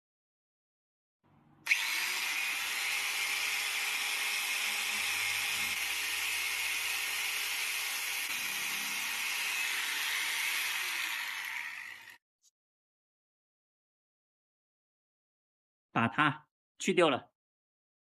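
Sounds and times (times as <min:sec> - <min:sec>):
electric grinder grinding a nail: 0:01.6 - 0:12.2.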